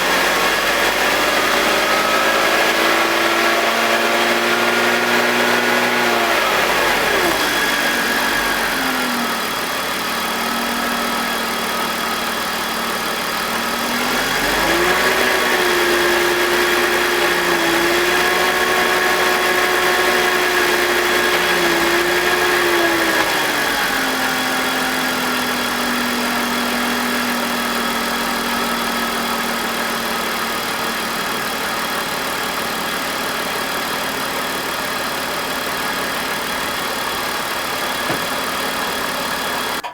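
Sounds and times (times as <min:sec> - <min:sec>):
car engine idling: 0:07.8 - 0:18.1, 0:25.2 - 0:39.9.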